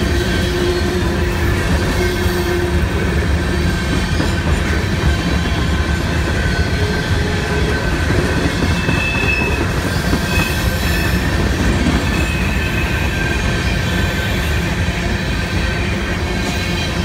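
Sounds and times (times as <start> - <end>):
freight train wheels rumbling: 0.0 - 17.0
high wheel squeal: 3.6 - 14.8.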